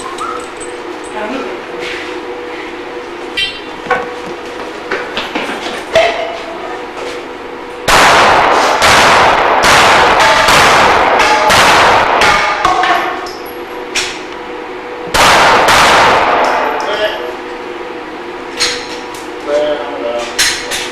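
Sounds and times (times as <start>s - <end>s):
pistol shots: 7.9s - 12.6s, 15.1s - 16.8s
steel targets ringing: 9.9s - 13.8s.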